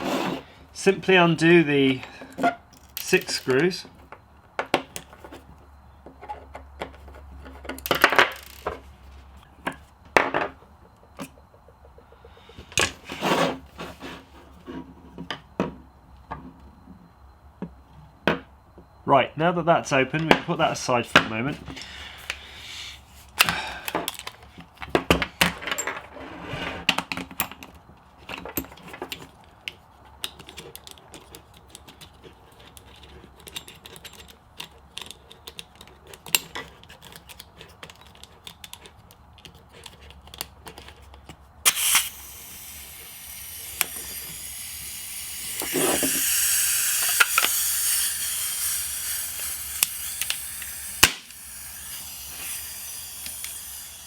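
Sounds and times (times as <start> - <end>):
gas hissing: 41.6 - 54.0
air pistol handling clicks: 41.7 - 53.8.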